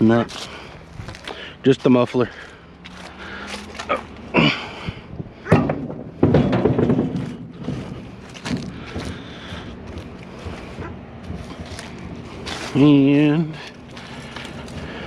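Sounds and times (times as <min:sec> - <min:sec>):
thumps and knocks of junk: 0:05.2 - 0:12.7
scraping clatter: 0:05.4 - 0:15.0.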